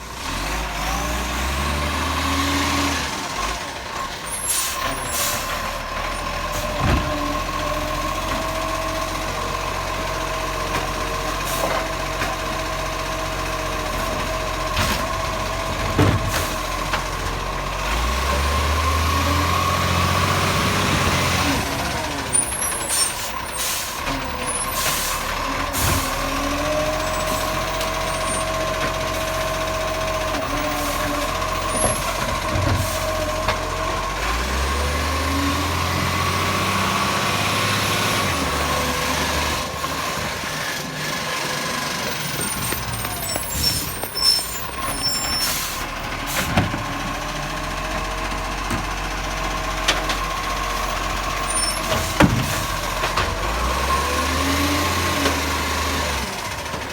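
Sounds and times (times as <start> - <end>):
garbage truck engine revving: 0.0 - 56.9
air brake hissing: 22.7 - 24.0.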